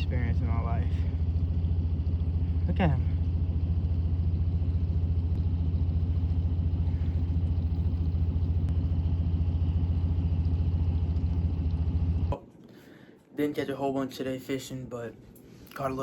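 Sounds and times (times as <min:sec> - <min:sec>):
engine humming steadily: 0:00.0 - 0:12.4.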